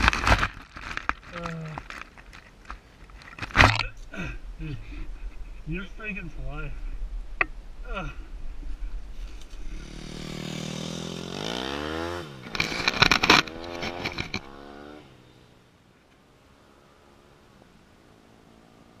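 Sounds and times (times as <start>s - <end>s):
small petrol engine revving: 9.6s - 15.3s.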